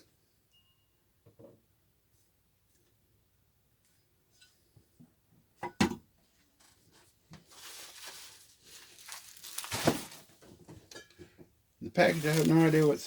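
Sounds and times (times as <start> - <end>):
sharp knock of object set down: 5.6 - 6.0
packing material rustling: 7.4 - 10.4, 12.0 - 13.0.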